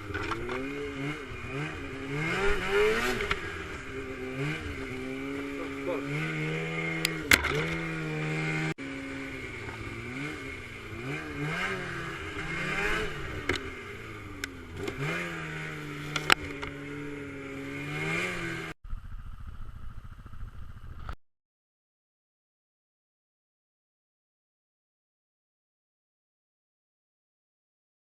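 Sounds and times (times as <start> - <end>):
off-road vehicle engine revving: 0.0 - 18.8.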